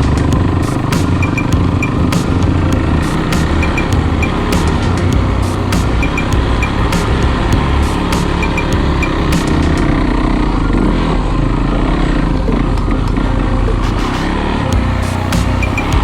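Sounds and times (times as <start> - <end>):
dirt bike engine running: 0.0 - 10.9.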